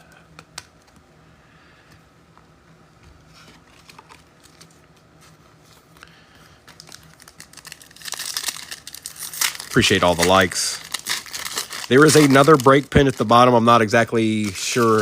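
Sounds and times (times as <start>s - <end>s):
card pack wrapper tearing: 6.7s - 15.0s.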